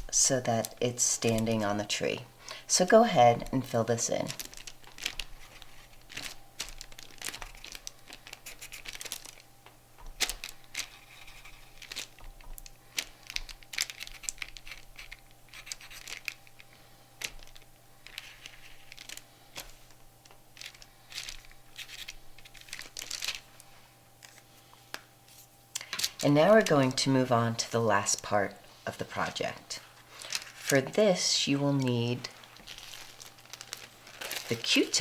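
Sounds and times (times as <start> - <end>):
paper rustling: 4.2 - 9.4, 10.1 - 27.0, 29.1 - 31.0, 31.8 - 35.0.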